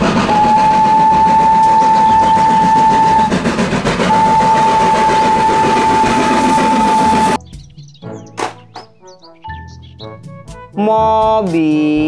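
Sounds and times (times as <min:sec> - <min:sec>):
steam locomotive whistle: 0:00.0 - 0:07.4.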